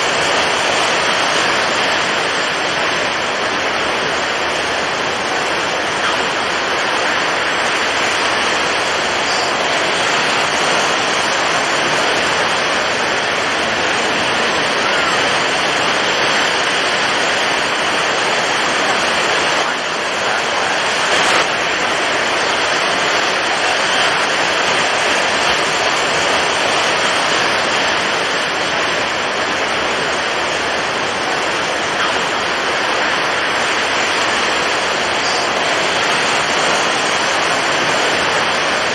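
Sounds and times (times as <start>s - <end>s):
breaking waves: 0.0s - 38.9s
strong wind: 0.0s - 38.9s.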